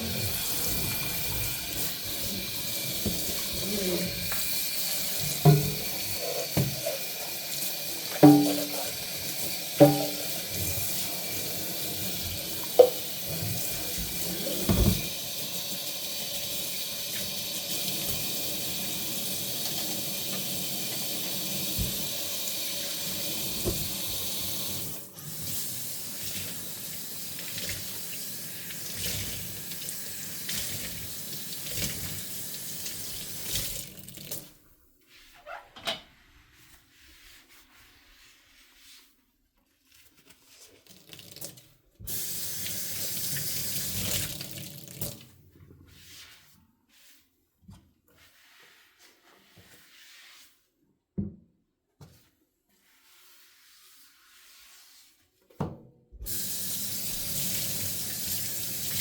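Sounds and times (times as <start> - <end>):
tap running into sink: 1.7 - 6.9, 8.1 - 9.0, 9.8 - 10.4, 12.5 - 15.2, 19.6 - 22.2, 23.5 - 24.4
dishes clinking: 8.2 - 8.9, 9.8 - 10.4, 12.8 - 13.1.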